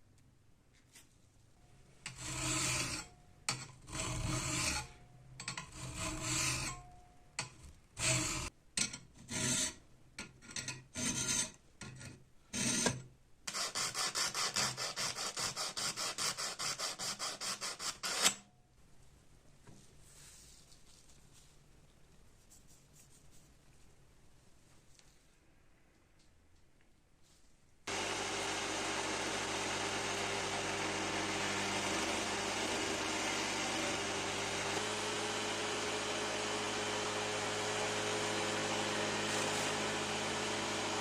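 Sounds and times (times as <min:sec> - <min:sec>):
file rasping: 0:02.1 - 0:06.8, 0:08.0 - 0:08.5, 0:09.2 - 0:09.8, 0:10.5 - 0:18.4, 0:27.9 - 0:41.0.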